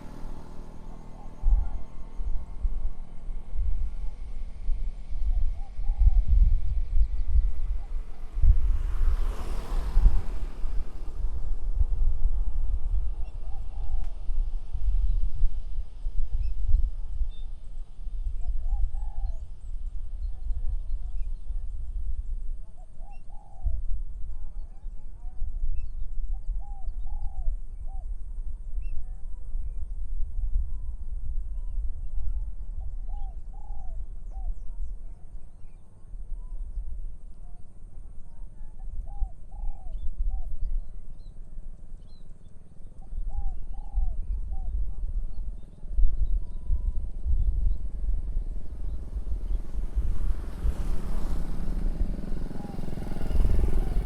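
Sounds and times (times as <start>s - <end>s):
small birds chirping faintly: 0.0s - 54.0s
wind rumble on microphone: 0.0s - 54.0s
small birds chirping: 30.7s - 54.0s
dove cooing: 50.7s - 54.0s.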